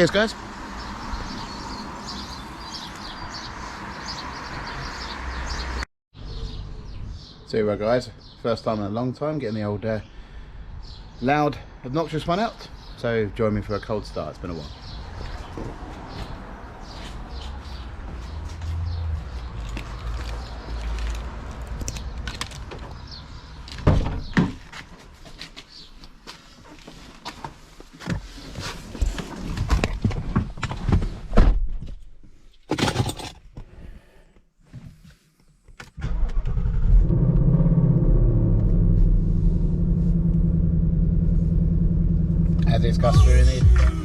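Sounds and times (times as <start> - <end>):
car engine starting and idling: 36.0 - 44.0.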